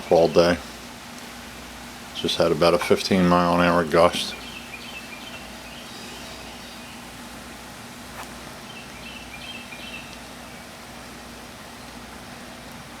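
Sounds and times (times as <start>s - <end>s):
rain and wind hiss: 0.0s - 13.0s
small birds chirping: 2.2s - 11.0s.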